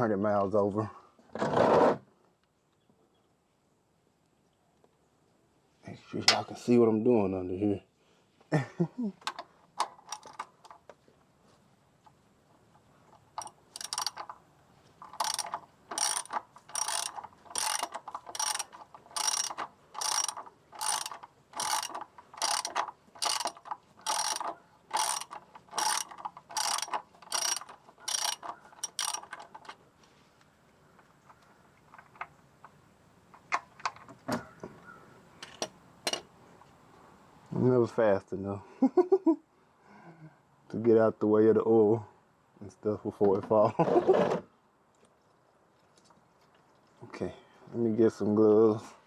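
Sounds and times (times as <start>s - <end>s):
socket wrench ratchet clicking: 13.4s - 14.3s, 15.0s - 29.8s.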